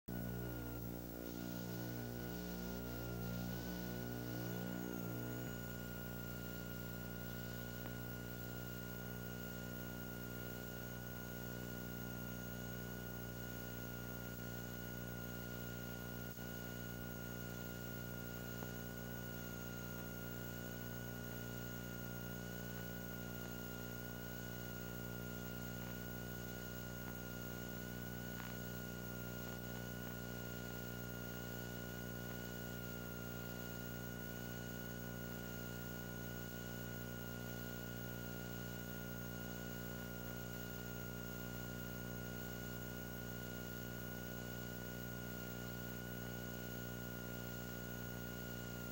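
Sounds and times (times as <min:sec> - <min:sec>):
thin high whine: 0:00.1 - 0:08.6
electrical hum with hiss: 0:00.1 - 0:48.9.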